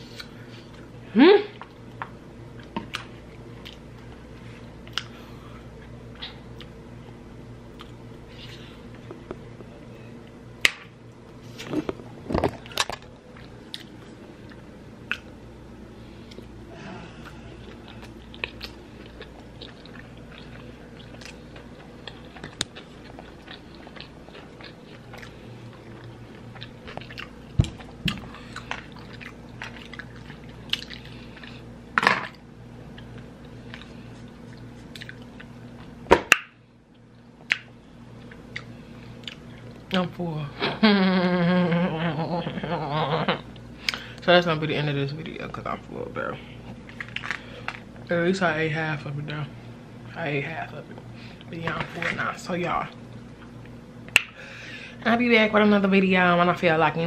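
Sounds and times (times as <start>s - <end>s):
steady low hum: 0.0s - 57.0s
person chewing with wet mouth clicks: 34.5s - 35.5s, 36.9s - 39.5s.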